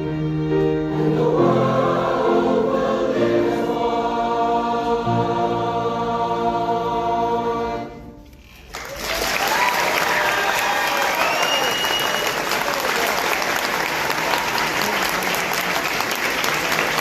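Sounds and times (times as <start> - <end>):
choir singing: 0.5 - 8.2
audience applause: 8.6 - 17.0.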